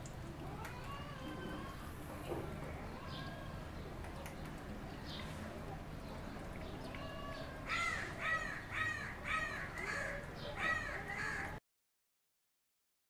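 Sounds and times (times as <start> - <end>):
bird giving loud calls: 7.7 - 11.6.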